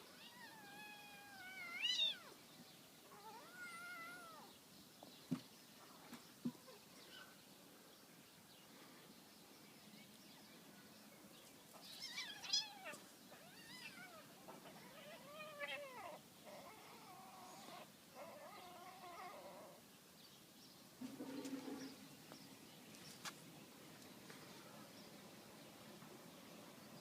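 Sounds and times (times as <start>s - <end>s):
cat meowing: 11.9s - 19.7s.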